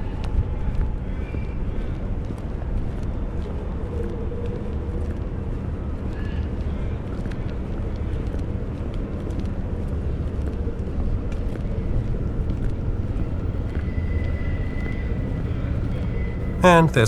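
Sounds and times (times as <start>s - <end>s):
electric train rumbling: 10.8s - 16.7s
faint thin high tone: 16.6s - 17.0s.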